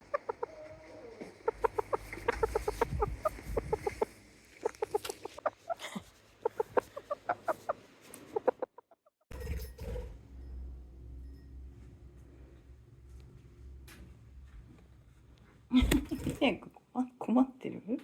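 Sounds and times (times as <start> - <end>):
chickens clucking: 0.0 - 9.0.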